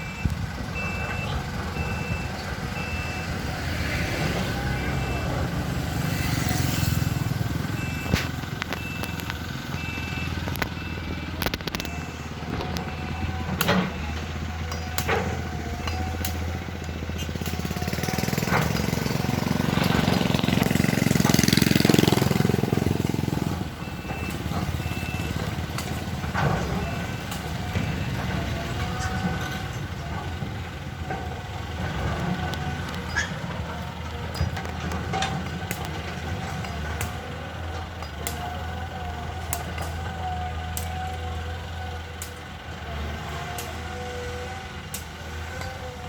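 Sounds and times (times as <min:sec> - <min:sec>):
high beeping warning alarm: 0:00.0 - 0:14.8
excavator diesel engine running: 0:00.0 - 0:46.0.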